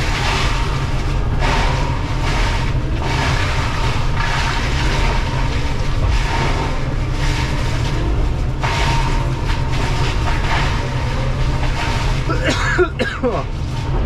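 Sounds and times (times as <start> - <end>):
constant high whine: 0.0 - 14.0
excavator engine drone: 0.0 - 14.0
mulcher harsh grinding: 0.0 - 14.0.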